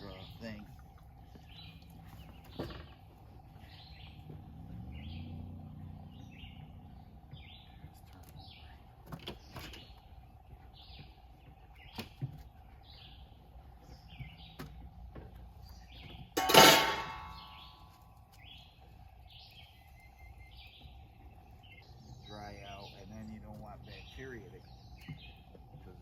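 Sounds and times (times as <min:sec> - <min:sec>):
bird chirping: 0:00.0 - 0:16.4, 0:17.1 - 0:26.0
loud metallic clang: 0:16.4 - 0:17.8.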